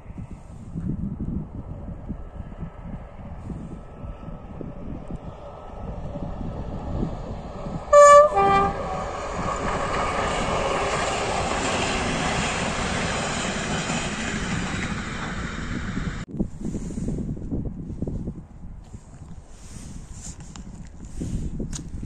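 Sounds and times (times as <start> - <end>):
train coaches rumbling and clattering: 4.8 - 16.3
two-tone train horn: 7.9 - 9.3.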